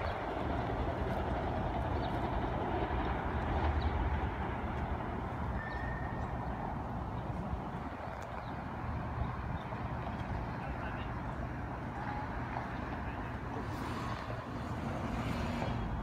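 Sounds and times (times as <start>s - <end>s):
train rumbling on tracks: 0.0s - 16.0s.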